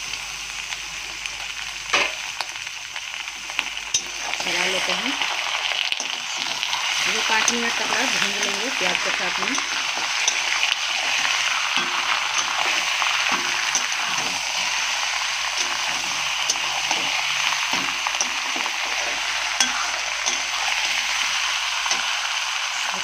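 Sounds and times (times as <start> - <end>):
chicken sizzling in hot oil: 0.0 - 23.0
metal spatula scraping a pan: 5.9 - 21.1.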